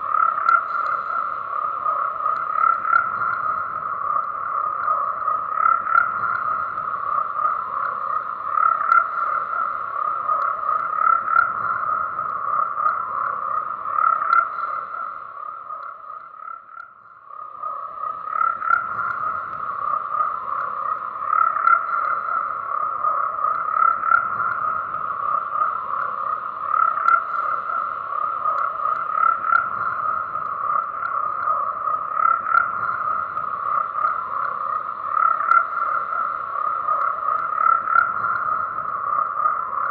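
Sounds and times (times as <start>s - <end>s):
frogs calling in chorus: 0.0s - 39.9s.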